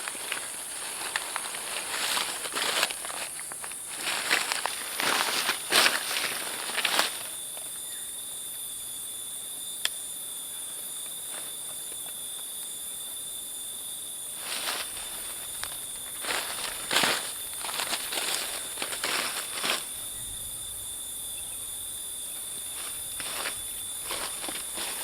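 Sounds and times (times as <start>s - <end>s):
rustling on dry leaves: 0.0s - 7.7s, 14.3s - 20.8s, 21.7s - 25.0s
crickets chorus: 0.0s - 25.0s.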